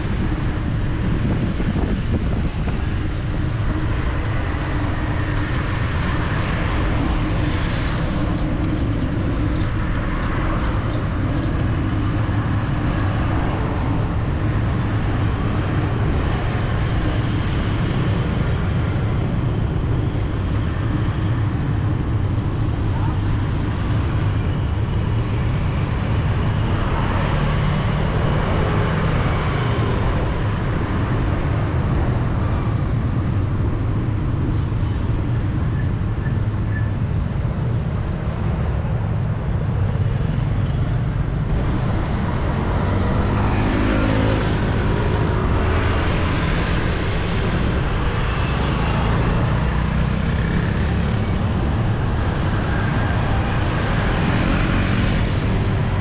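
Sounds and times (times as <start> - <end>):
city street traffic rumble: 0.0 - 56.0
vehicle engine passing by: 41.7 - 47.3.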